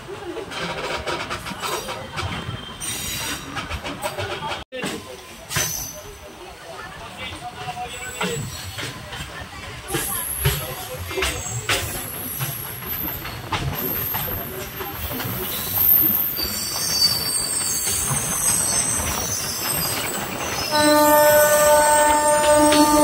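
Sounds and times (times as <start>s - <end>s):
wheels knocking over rail joints: 8.2s - 23.0s
high-pitched wheel squeal: 15.4s - 23.0s
train horn: 20.6s - 23.0s.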